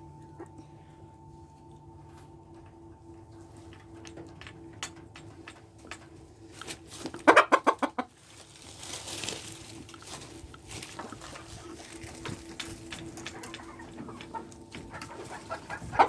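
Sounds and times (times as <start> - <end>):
chickens clucking: 5.2 - 16.0
rustle: 8.1 - 12.4.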